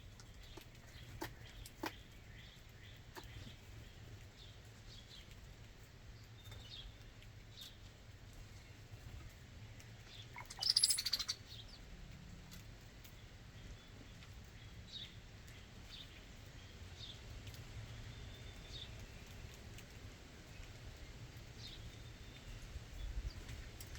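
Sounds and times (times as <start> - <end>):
songbirds chirping: 0.0 - 23.9
rasping bird call: 10.4 - 11.4.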